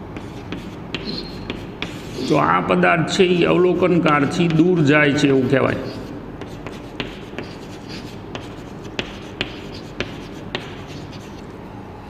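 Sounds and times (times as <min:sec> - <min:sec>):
chalk tapping on board: 0:00.2 - 0:02.3, 0:03.3 - 0:04.8, 0:05.8 - 0:11.4
chalk scratching on blackboard: 0:00.2 - 0:02.5, 0:03.1 - 0:11.4.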